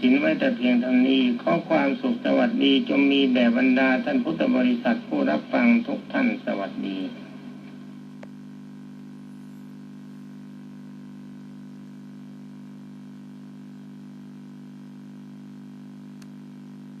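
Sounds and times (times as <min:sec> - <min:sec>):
low electrical hum: 0:00.0 - 0:17.0
faint click: 0:16.1 - 0:16.4.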